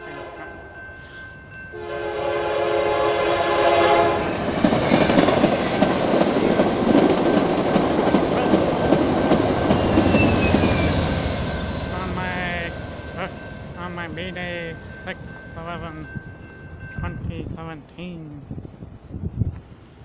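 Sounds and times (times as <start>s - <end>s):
train horn: 0.0s - 4.4s
train cars clicking over track: 4.3s - 10.9s.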